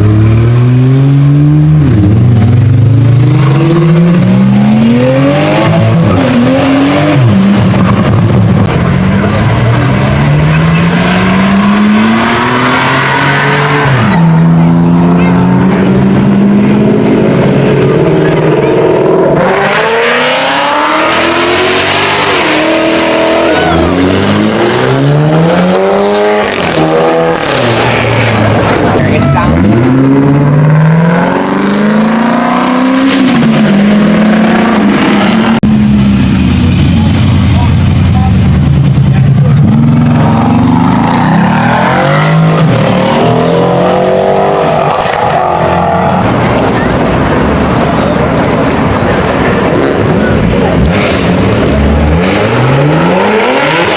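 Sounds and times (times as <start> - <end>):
car engine accelerating: 0.0 - 53.9.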